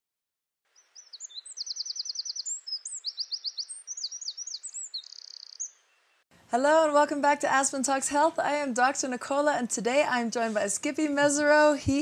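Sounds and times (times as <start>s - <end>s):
songbird singing trills: 0.7s - 6.2s.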